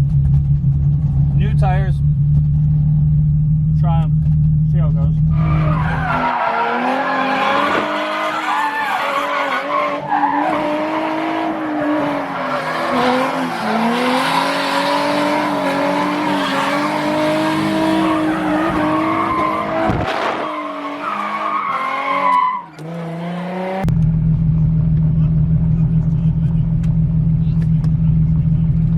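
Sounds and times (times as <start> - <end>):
car engine revving high: 5.2 - 27.6
tyres squealing: 5.3 - 14.6, 15.3 - 22.9.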